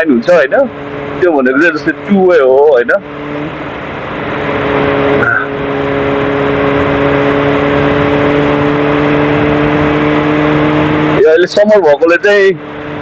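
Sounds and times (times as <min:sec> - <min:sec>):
motorcycle engine cruising: 0:00.0 - 0:13.0
wind noise: 0:03.0 - 0:11.2.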